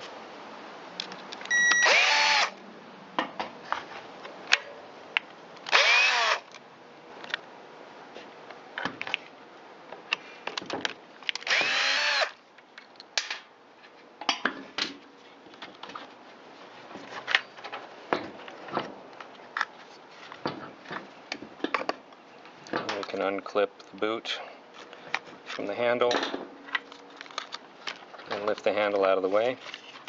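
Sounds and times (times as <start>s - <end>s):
electric screwdriver whirring: 1.5s - 2.6s, 5.7s - 6.4s, 11.4s - 12.4s.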